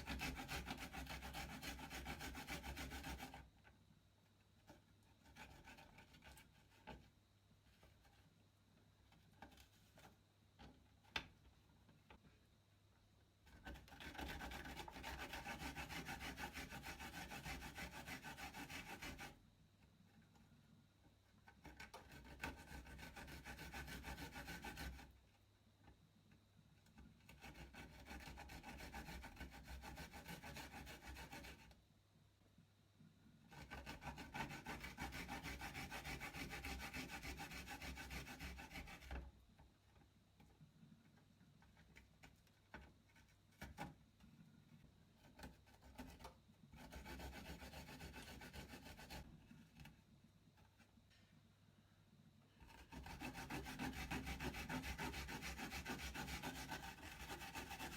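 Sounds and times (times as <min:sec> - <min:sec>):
garlic rasping on a grater: 0:00.0 - 0:03.4, 0:13.7 - 0:19.3, 0:33.5 - 0:39.2, 0:52.7 - 0:57.9.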